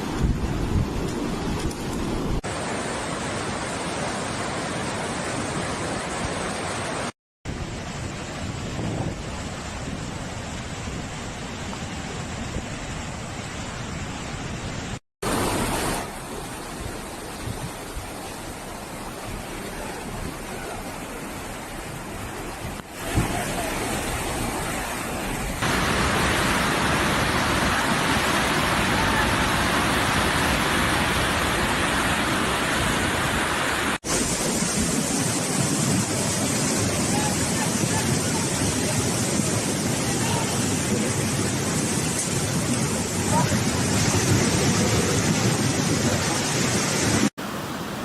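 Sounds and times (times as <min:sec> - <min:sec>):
floodwater rushing: 0:00.0 - 0:48.0.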